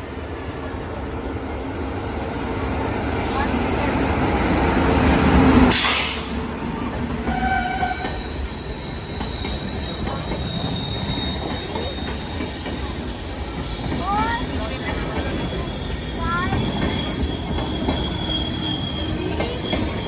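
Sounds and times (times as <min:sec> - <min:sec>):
train wheels rumbling on rails: 0:00.0 - 0:20.0
high wheel squeals: 0:05.7 - 0:20.0.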